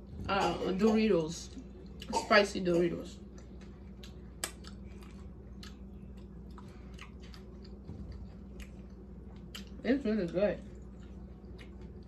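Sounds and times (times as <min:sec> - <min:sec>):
low background hum: 0:00.0 - 0:12.0
chewing crunchy taco: 0:03.2 - 0:12.0.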